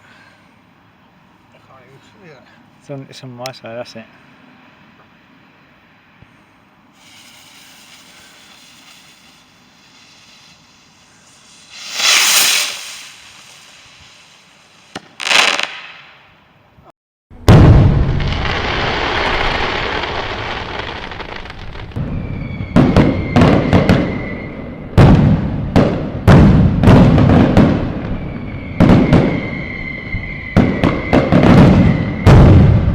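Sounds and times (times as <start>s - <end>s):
firework fuse hissing: 6.9s - 16.1s, 18.4s - 24.4s
firework rocket bursting: 6.9s - 16.3s, 17.5s - 32.9s
steady high whistle: 7.0s - 14.5s, 22.0s - 25.0s, 27.9s - 32.9s.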